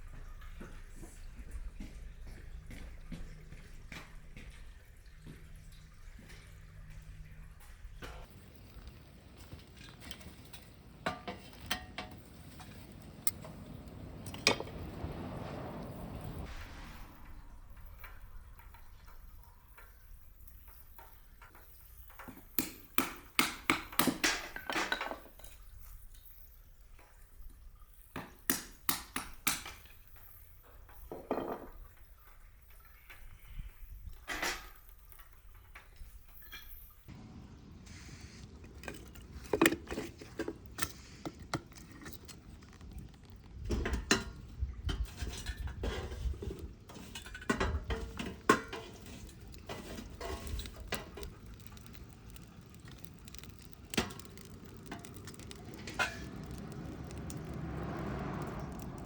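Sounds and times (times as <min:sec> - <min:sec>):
cookware and utensils clattering: 0:05.5 - 0:13.4, 0:18.1 - 0:26.2, 0:30.7 - 0:37.1, 0:43.7 - 0:51.4.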